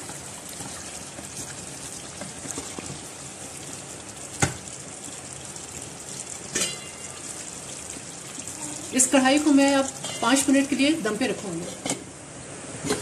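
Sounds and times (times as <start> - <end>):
wooden spatula stirring: 0.0 - 3.0
food sizzling in hot oil: 0.0 - 13.0.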